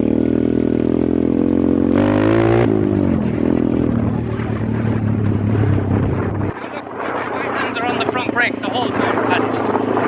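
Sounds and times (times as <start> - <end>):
motorbike engine revving: 0.0 - 6.5.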